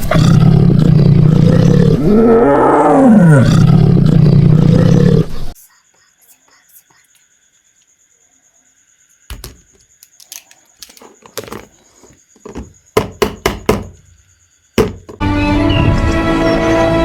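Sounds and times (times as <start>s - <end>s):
knocks and thunks: 12.4s - 14.1s, 14.8s - 15.2s
music: 15.2s - 17.0s.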